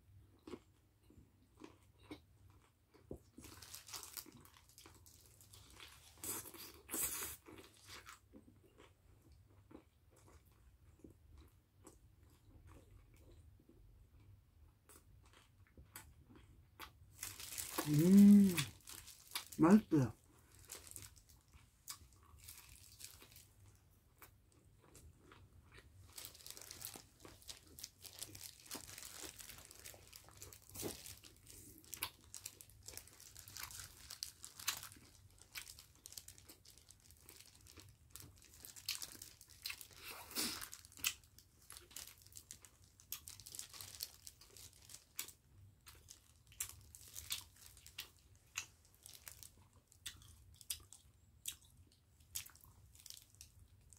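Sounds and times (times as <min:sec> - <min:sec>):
crunching and chewing food: 0:00.0 - 0:53.9
plastic gloves crinkling: 0:03.4 - 0:06.2, 0:17.1 - 0:23.6, 0:26.0 - 0:41.0, 0:41.6 - 0:45.3, 0:45.9 - 0:49.6.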